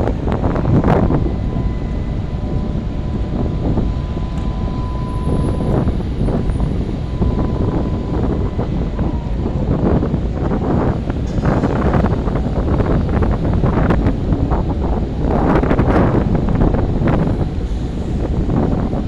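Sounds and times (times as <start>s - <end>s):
wind gusting over microphone: 0.0s - 19.0s
faint steady high tone: 1.0s - 9.6s.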